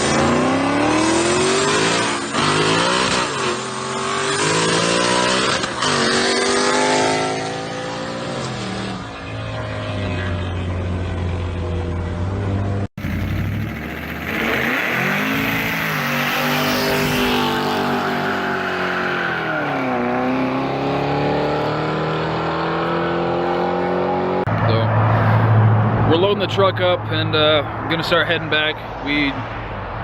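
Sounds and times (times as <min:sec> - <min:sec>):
vehicle engine accelerating: 0:00.0 - 0:27.9.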